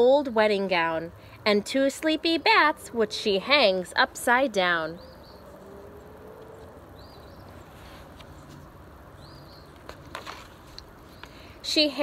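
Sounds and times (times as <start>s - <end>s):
faint outdoor background hiss: 0.0s - 12.0s
faint bird chirps: 4.8s - 8.6s.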